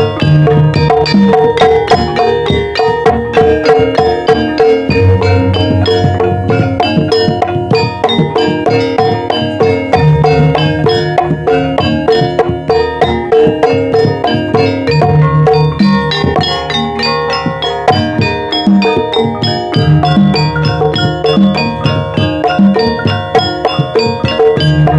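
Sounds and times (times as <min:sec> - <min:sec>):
hand drum strokes: 0:00.0 - 0:24.9
metallophones ringing notes: 0:00.0 - 0:24.9
deep sustained low tones: 0:04.9 - 0:08.8.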